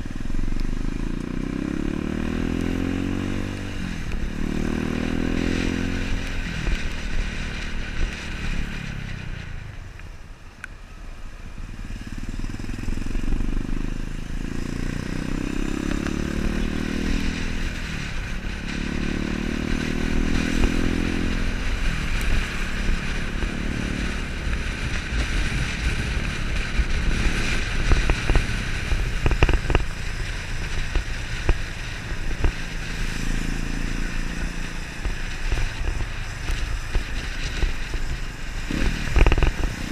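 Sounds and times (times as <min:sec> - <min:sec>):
wind and road rumble: 0:00.0 - 0:39.9
motorcycle engine shifting gears: 0:11.6 - 0:39.9.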